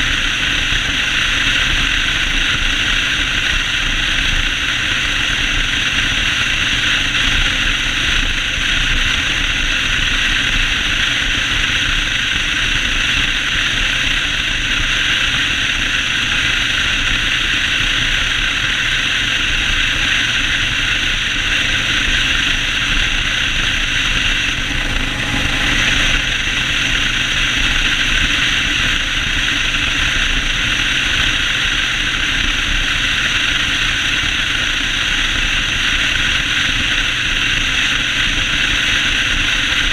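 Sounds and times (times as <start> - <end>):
motorcycle engine running: 0.0 - 39.9
road noise: 0.0 - 39.9
wind rushing: 22.2 - 29.1.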